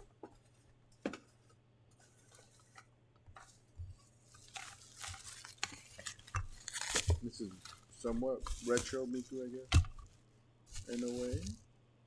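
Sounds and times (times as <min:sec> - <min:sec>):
packaging rustling and crinkling: 0:04.3 - 0:11.6.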